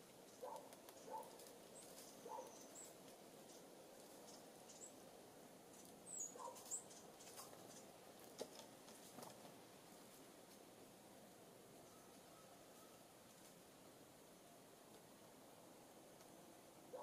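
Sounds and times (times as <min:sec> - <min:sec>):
small birds chirping: 0:00.0 - 0:09.2.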